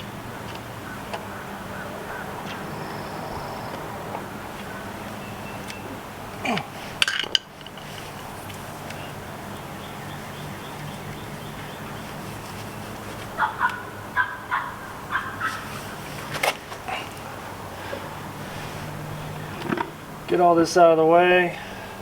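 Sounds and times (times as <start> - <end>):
fowl calling: 0.3 - 6.0, 13.3 - 16.1.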